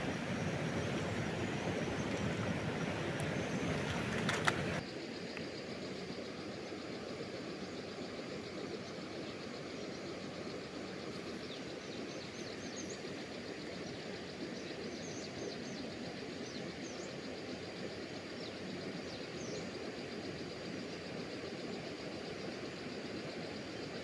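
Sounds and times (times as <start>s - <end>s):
bird chirps: 0.0s - 4.8s
river water flowing: 0.0s - 4.8s.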